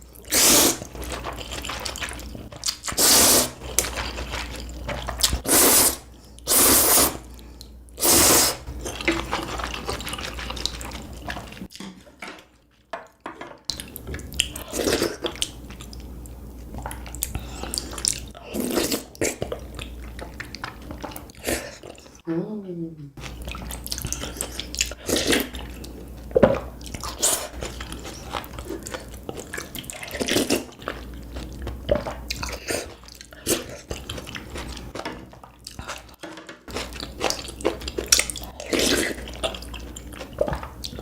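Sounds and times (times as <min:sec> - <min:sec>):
noodles being slurped: 0:00.0 - 0:11.8, 0:14.4 - 0:22.2, 0:23.2 - 0:41.0
wet mouth sounds: 0:02.6 - 0:03.6.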